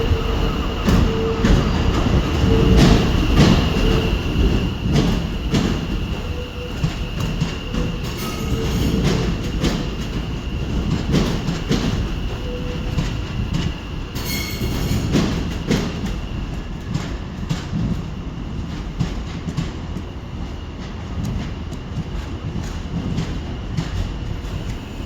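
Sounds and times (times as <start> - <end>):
train rumbling on rails: 0.0 - 25.0.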